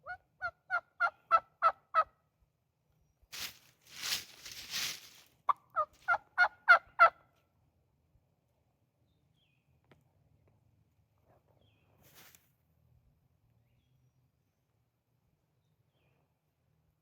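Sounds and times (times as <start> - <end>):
turkey yelps: 0.0 - 2.1, 5.5 - 7.2
rustling: 3.3 - 5.4.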